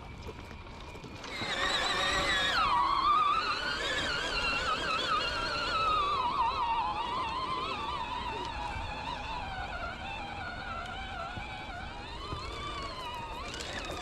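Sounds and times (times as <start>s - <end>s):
small engine buzzing whine: 0.0s - 14.0s.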